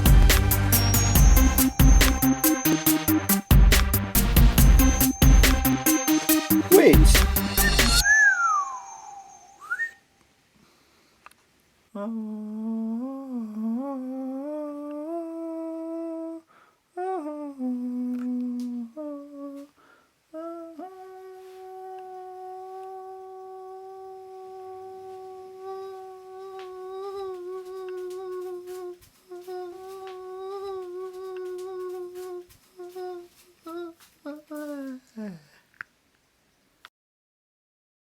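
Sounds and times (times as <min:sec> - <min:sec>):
person humming: 0:12.0 - 0:35.6.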